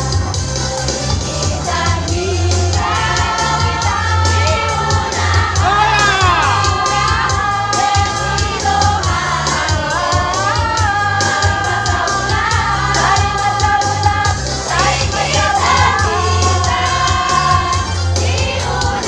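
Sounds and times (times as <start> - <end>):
choir singing: 2.8 - 9.3, 14.6 - 19.0.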